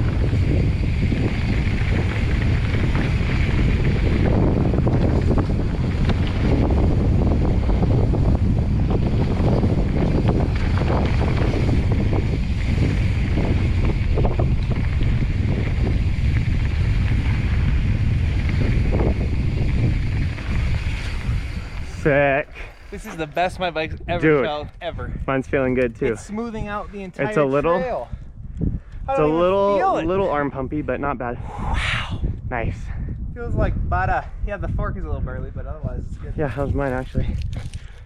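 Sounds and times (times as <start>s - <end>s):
bike rattling over rocks: 0.0s - 22.2s
wind rushing over microphone: 0.0s - 38.0s.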